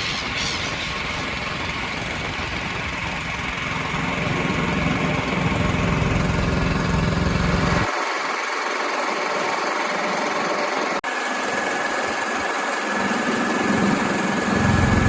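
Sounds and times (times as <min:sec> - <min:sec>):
engine rumbling: 0:00.0 - 0:07.9, 0:13.3 - 0:15.0.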